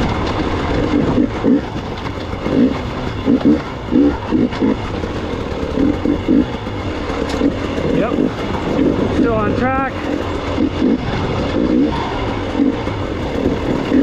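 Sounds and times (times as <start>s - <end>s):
two-stroke motorcycle engine revving: 0.0s - 14.0s.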